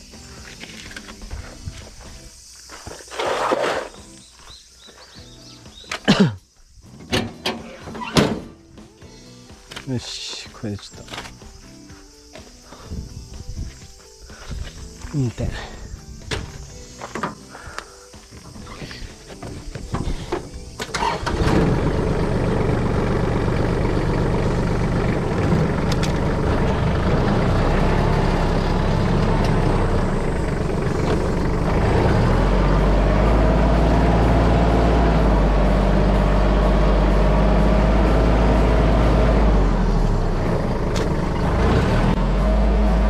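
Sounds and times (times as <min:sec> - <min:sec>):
tractor diesel engine running: 0:14.4 - 0:43.0
high engine whine: 0:18.4 - 0:43.0.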